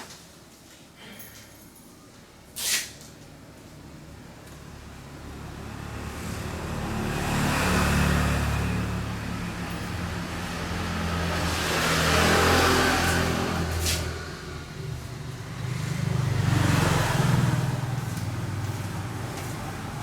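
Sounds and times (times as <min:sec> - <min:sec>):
vehicles passing by: 0:04.6 - 0:20.0.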